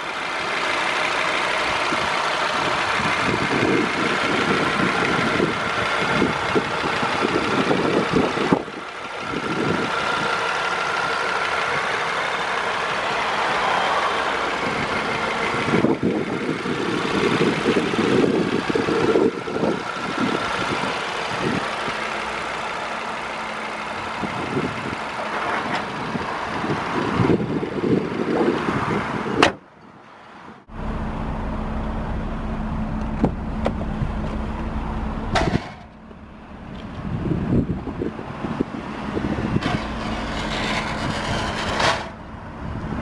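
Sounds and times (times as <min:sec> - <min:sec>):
car engine idling: 0:00.0 - 0:28.3, 0:30.6 - 0:43.0
wind rumbling on microphone: 0:01.9 - 0:10.4, 0:14.6 - 0:22.0, 0:24.0 - 0:29.5, 0:30.7 - 0:35.7, 0:36.6 - 0:43.0.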